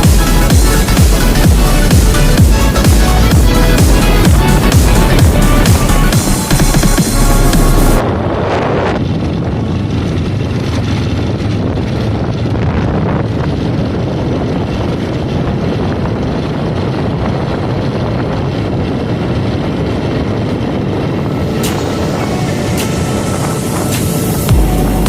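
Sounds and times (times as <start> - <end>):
motorcycle running: 0.0 - 25.0
wind rush on microphone: 0.0 - 25.0.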